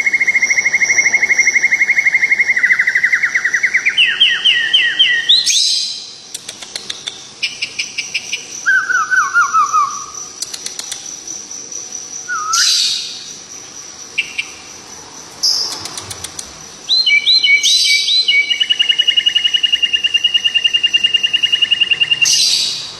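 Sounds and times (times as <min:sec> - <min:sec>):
bird trilling: 0:00.0 - 0:11.2, 0:12.3 - 0:13.4, 0:14.1 - 0:14.7, 0:15.4 - 0:22.9
songbird singing: 0:00.0 - 0:22.9.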